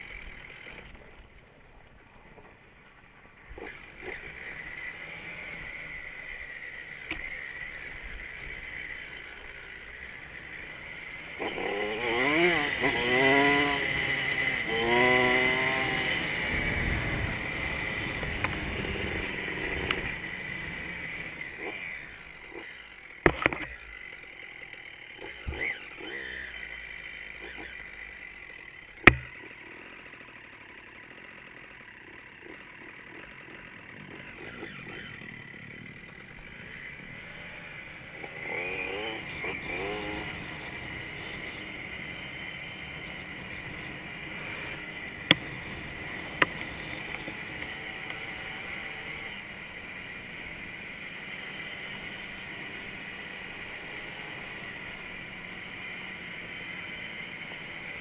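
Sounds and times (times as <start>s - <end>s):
dirt bike engine revving: 3.4s - 58.0s
sharp knocks: 29.0s - 29.4s.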